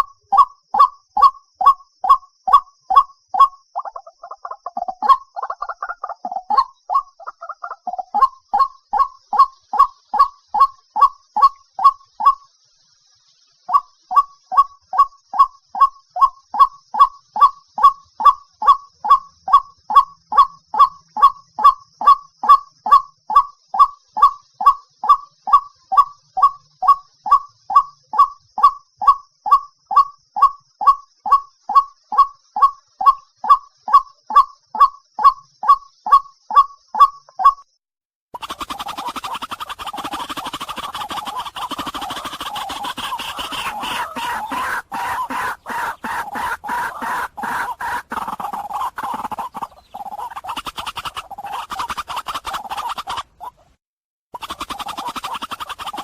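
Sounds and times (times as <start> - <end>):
waterhen calling: 0.0 - 12.5, 13.7 - 23.0, 38.4 - 53.8, 54.5 - 56.0.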